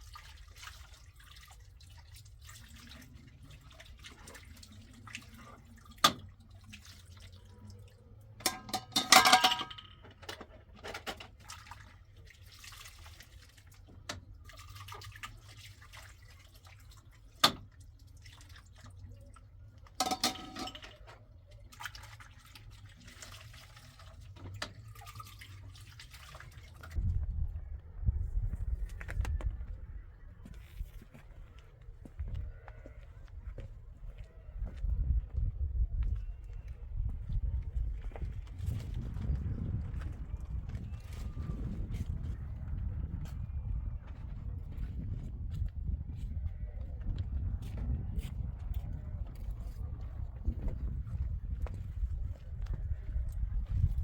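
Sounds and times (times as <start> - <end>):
water splashing and dripping: 0.0 - 27.2
dishes clattering: 8.5 - 10.1, 20.0 - 21.0.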